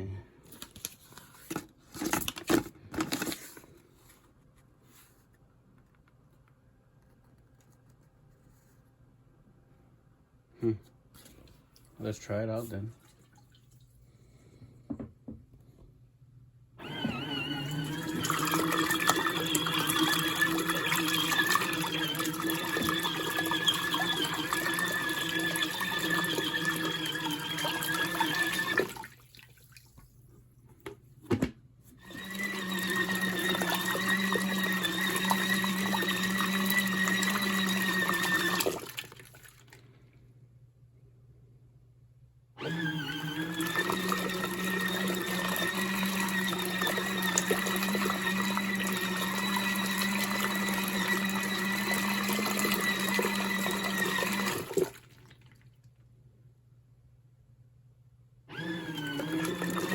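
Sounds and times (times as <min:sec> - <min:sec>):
washing machine churning water: 0:16.8 - 0:30.0, 0:32.0 - 0:39.8, 0:42.6 - 0:55.8, 0:58.5 - 0:59.9.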